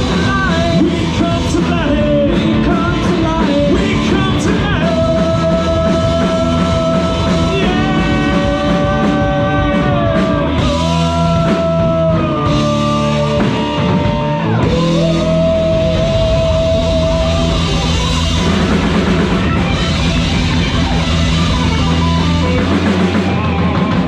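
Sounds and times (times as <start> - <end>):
live rock band: 0.0 - 24.0
sliding lead guitar notes: 0.0 - 24.0.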